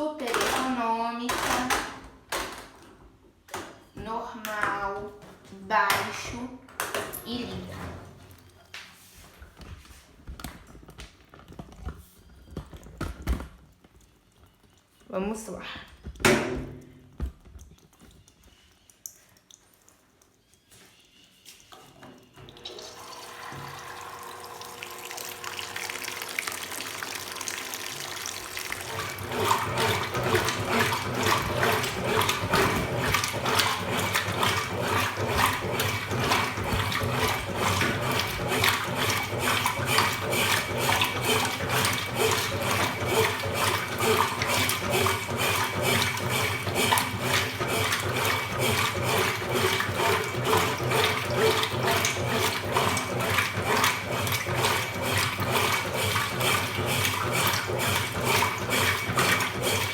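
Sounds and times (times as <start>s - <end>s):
water rushing into washing machine: 22.4s - 59.9s.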